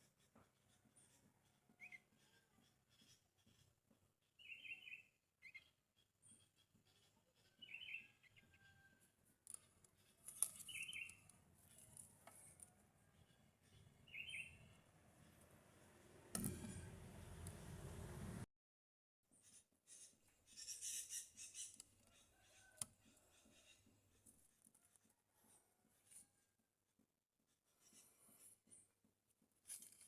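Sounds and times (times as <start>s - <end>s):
bird chirping faintly: 13.0s - 15.4s.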